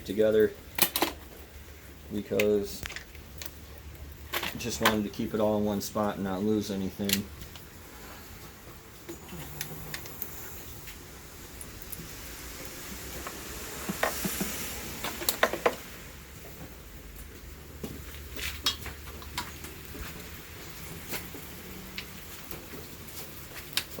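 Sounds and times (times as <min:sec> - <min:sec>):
metal tools clicking and clinking: 0:04.2 - 0:05.1.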